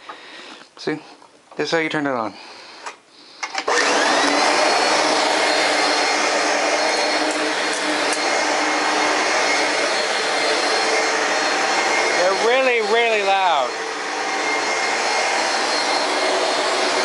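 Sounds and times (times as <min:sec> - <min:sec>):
loud vacuum cleaner whine: 0:03.5 - 0:17.0.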